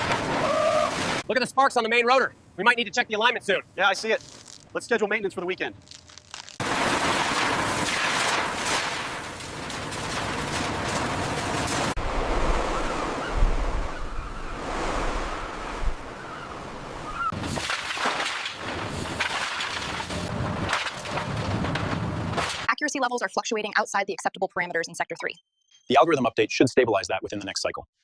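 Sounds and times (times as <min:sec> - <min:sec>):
industrial rushing and crackling: 0:05.8 - 0:12.5, 0:17.3 - 0:22.7.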